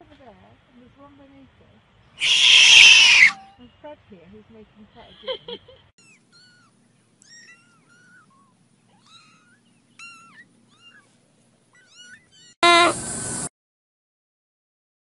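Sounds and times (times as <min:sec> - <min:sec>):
kittens mewing: 0:02.2 - 0:03.5, 0:06.0 - 0:13.0.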